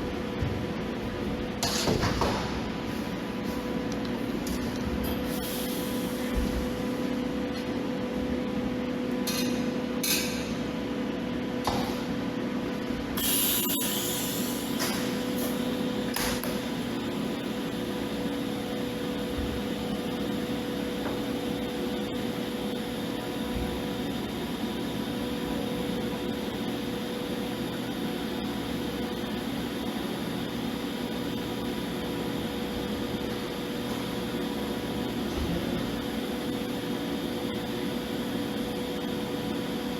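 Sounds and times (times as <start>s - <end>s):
welding arc humming: 1.0s - 7.5s, 12.6s - 39.9s
gas hissing: 5.0s - 6.7s, 13.2s - 20.4s.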